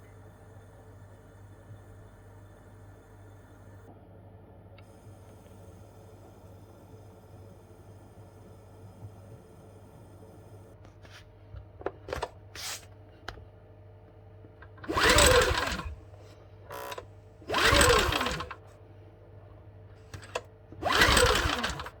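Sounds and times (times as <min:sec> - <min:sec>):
generator engine cranking: 0:14.7 - 0:16.1, 0:16.7 - 0:18.6, 0:20.0 - 0:22.0.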